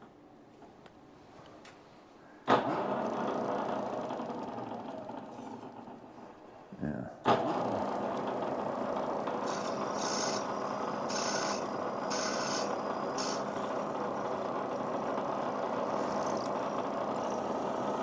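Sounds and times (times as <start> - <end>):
machine tool running: 7.3 - 18.0
drill bit scraping cutting: 9.4 - 14.4, 15.8 - 18.0.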